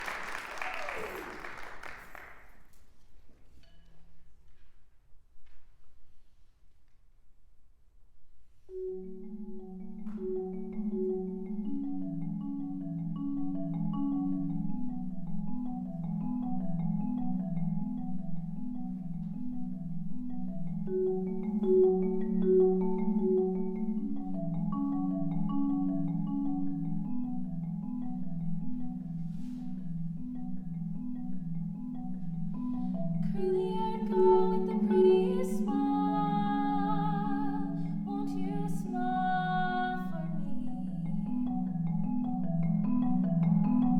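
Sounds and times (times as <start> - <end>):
solo marimba playing: 8.7 - 43.9.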